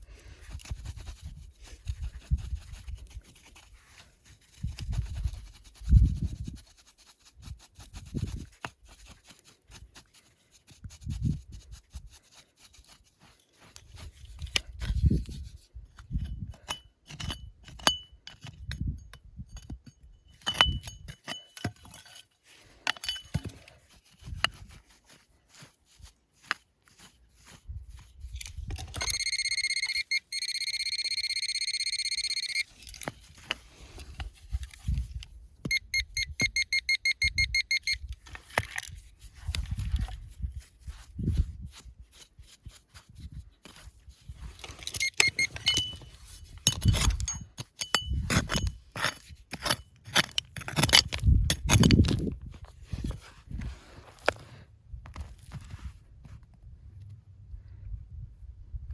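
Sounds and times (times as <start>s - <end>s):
clinks and knocks: 22.8s - 23.6s, 44.7s - 48.8s
metal detector short beeps: 28.8s - 33.0s, 35.7s - 38.2s, 44.8s - 46.4s
metal detector high-pitched tone: 28.9s - 32.9s, 35.6s - 38.2s, 44.9s - 46.2s.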